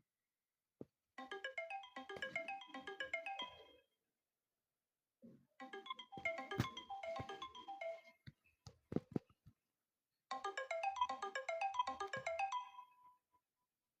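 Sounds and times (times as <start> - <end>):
phone ringtone marimba melody: 1.2 - 3.8, 5.7 - 8.2, 10.3 - 13.1.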